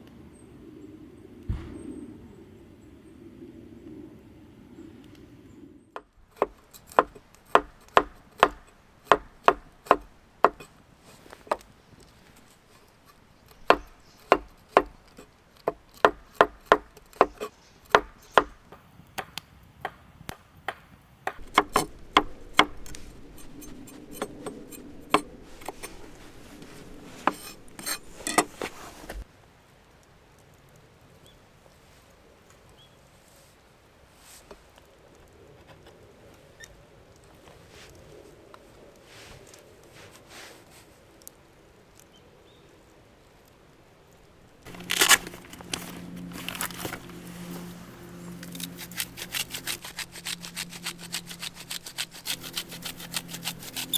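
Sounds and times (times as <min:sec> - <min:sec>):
chopping strikes on wood: 0:01.5 - 0:01.8, 0:06.4 - 0:10.7, 0:13.6 - 0:15.0, 0:15.7 - 0:18.6, 0:19.2 - 0:25.9
scraping on wood: 0:06.0 - 0:18.6, 0:21.3 - 0:29.2, 0:44.6 - 0:53.9.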